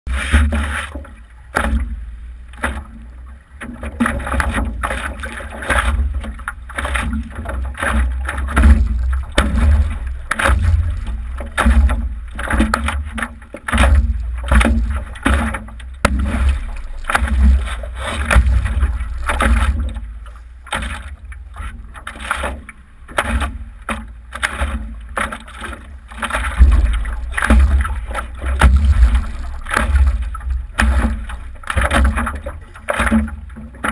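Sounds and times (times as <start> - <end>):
wind buffeting microphone: 26.6 - 32.7.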